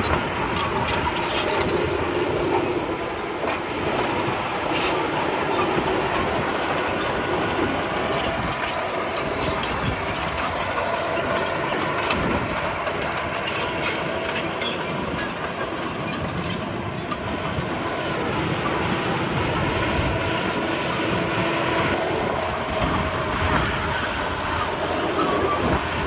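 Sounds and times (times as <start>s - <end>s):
bulldozer diesel engine running: 0.0s - 26.0s
steel tracks clanking: 0.0s - 26.0s.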